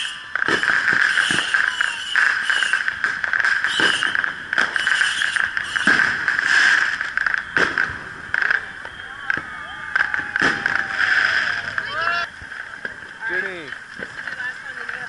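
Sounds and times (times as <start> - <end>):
fireworks crackling hiss: 0.0 - 15.0
fireworks dull bangs: 0.0 - 15.0.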